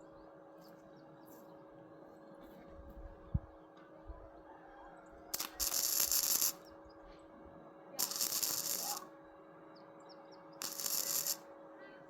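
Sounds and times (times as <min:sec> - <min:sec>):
short hissing bursts: 0:08.0 - 0:09.0, 0:10.6 - 0:11.4.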